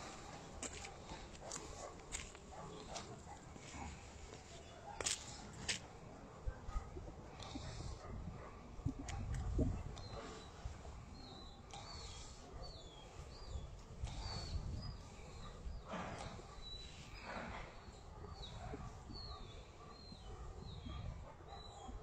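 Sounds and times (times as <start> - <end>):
low wind rumble: 6.2 - 11.2.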